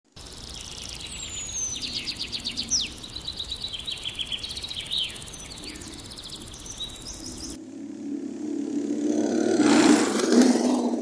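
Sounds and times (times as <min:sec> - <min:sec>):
birds chirping: 0:00.1 - 0:07.6.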